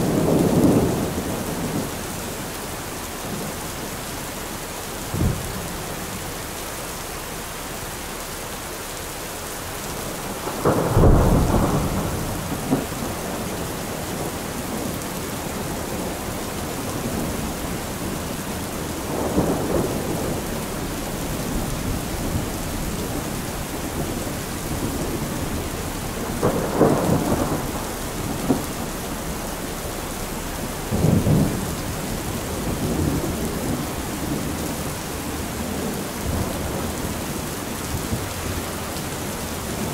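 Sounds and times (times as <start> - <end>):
steady rain: 0.0 - 39.9
thunder rolling: 10.4 - 14.9, 15.5 - 38.6.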